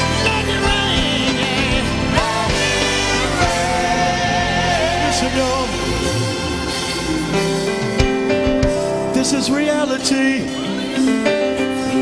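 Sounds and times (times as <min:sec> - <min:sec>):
person singing with vibrato: 0:00.0 - 0:08.3
steady bass: 0:00.0 - 0:10.0
gospel band music: 0:00.0 - 0:12.0.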